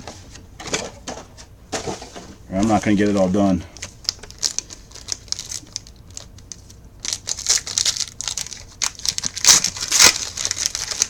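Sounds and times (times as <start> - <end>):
foil wrappers crinkling and tearing: 2.6 - 11.0.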